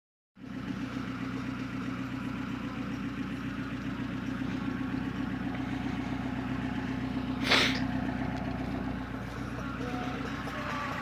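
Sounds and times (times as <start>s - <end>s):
car engine idling: 0.4s - 11.0s.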